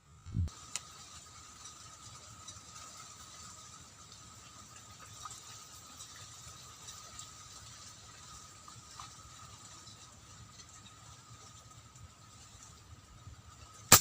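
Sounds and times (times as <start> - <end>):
faint high whine: 0.0 - 14.0
wind rumbling on microphone: 0.2 - 0.6.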